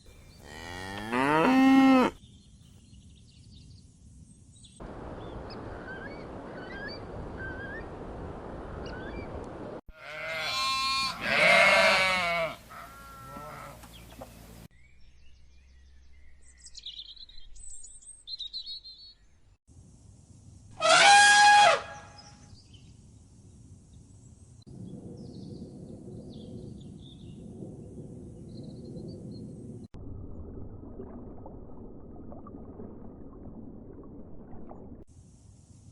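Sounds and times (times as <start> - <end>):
farm animals bleating: 0.4 - 2.2, 10.0 - 13.9
small birds chirping: 13.8 - 19.6.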